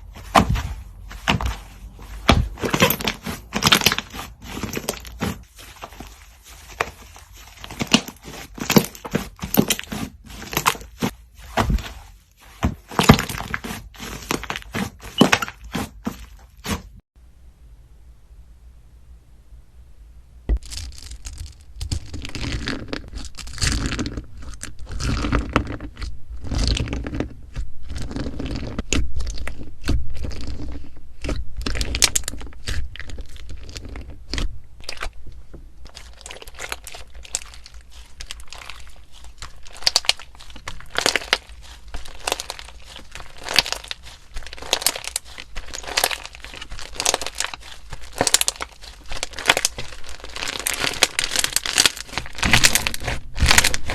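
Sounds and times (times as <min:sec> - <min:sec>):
slime crackling and popping: 0:20.6 - 0:53.9.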